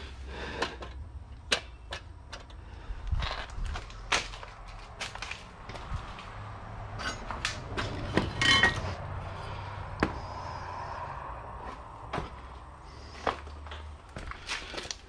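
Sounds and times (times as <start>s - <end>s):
steel scrap knocking and clanking: 6.9s - 9.0s.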